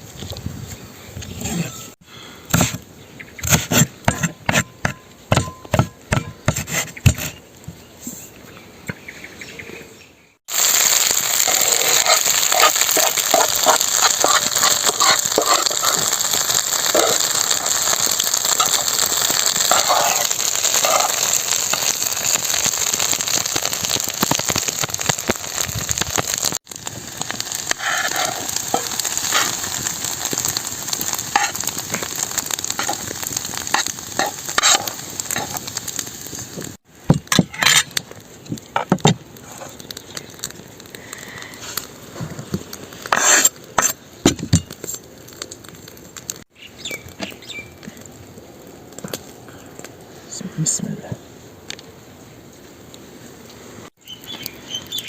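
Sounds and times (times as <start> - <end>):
food sizzling in a pan: 10.5 - 36.9, 41.0 - 44.0.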